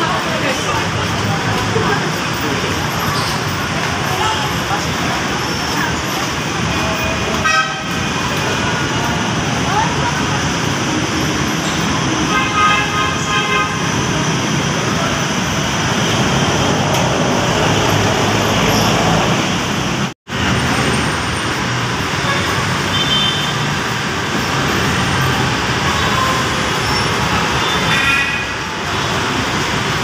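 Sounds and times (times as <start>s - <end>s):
city road traffic: 0.0s - 30.0s
vehicle horn: 6.8s - 8.0s, 12.3s - 14.0s, 22.2s - 23.6s.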